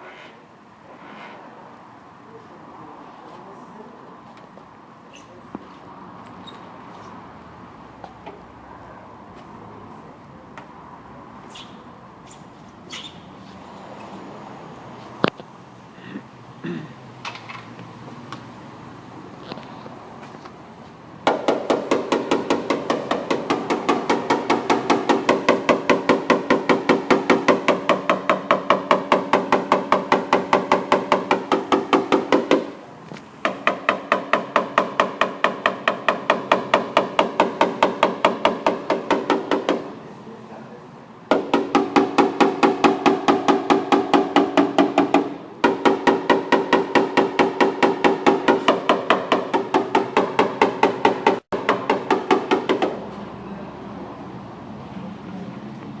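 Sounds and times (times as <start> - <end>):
hammer tapping on sheet metal: 21.2 - 32.8, 33.4 - 40.0, 41.3 - 53.1.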